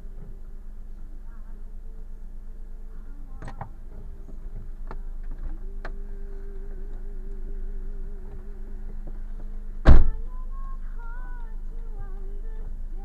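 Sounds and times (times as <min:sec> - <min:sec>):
car interior drive hum: 0:00.0 - 0:13.0
wavering whine: 0:00.0 - 0:13.0
loud sharp thump: 0:09.8 - 0:10.2.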